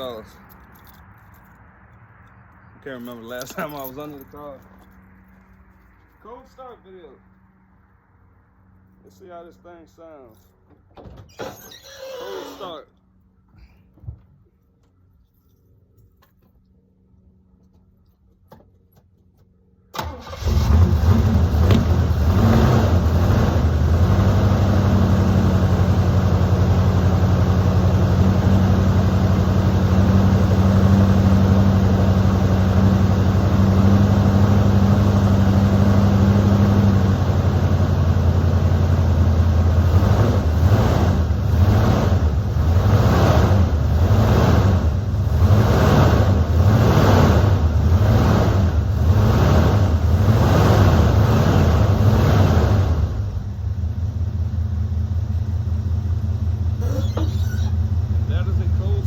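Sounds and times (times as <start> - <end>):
car engine starting and idling: 17.2 - 59.0.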